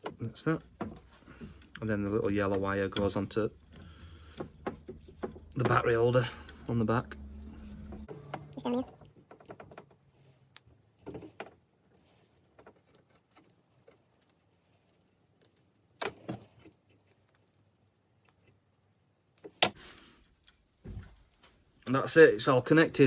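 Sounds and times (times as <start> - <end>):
wires and connectors clicking: 0.0 - 19.8.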